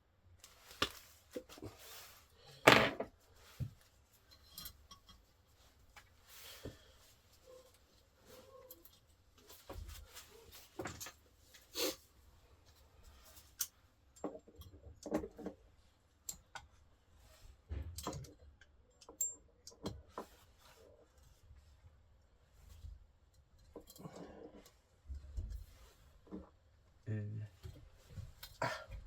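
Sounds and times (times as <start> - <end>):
tools clicking and knocking: 17.9 - 20.3.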